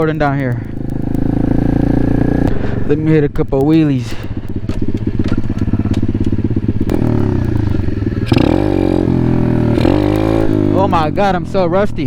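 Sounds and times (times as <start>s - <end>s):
small motorbike engine revving: 4.4s - 11.4s.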